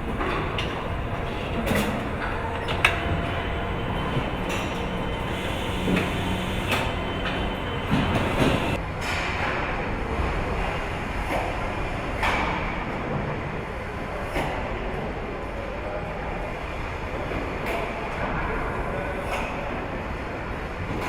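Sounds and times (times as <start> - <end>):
factory mechanical din: 0.0 - 11.1.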